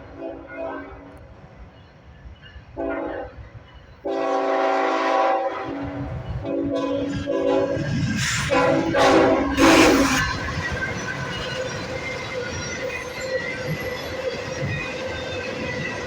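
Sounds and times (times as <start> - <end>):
low rumble of passing train: 0.0 - 16.0
locomotive air horn blasts: 2.8 - 3.3, 4.1 - 7.8, 8.4 - 10.4.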